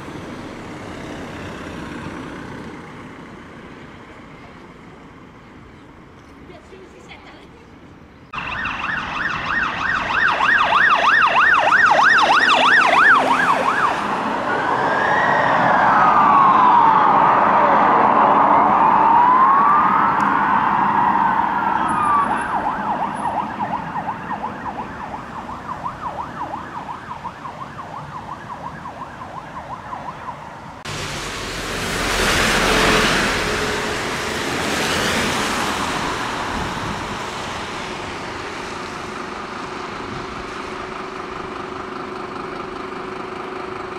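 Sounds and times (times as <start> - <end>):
siren fast yelp: 8.4 - 30.4
sirens wailing: 8.4 - 41.8.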